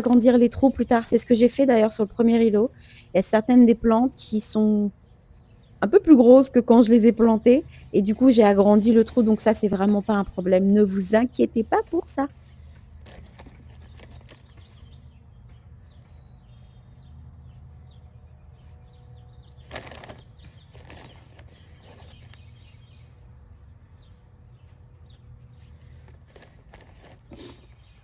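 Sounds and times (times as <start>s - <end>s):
rustling scrape: 11.8s - 14.9s, 19.6s - 22.8s, 24.6s - 28.0s.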